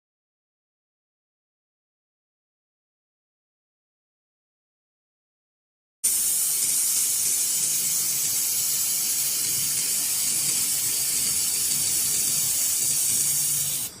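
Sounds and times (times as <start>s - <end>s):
welding gun gas hiss: 6.0s - 14.0s.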